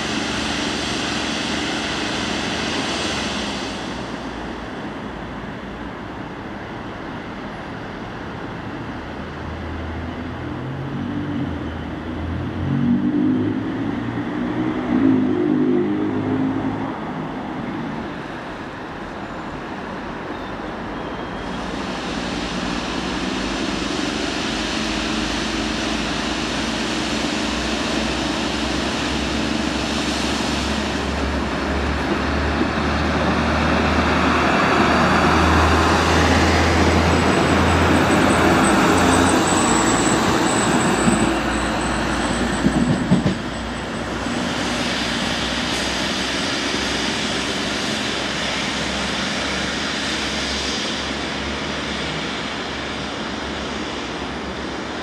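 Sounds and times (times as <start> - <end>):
train rumbling past: 0.0 - 55.0.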